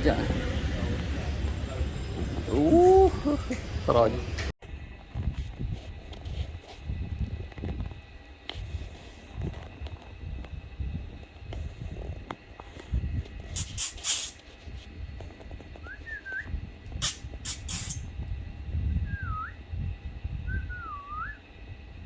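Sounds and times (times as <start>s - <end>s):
loud bursts of hiss: 13.5s - 14.4s, 17.0s - 18.1s
whistled notes bending: 15.8s - 16.6s, 19.1s - 19.6s, 20.5s - 21.4s.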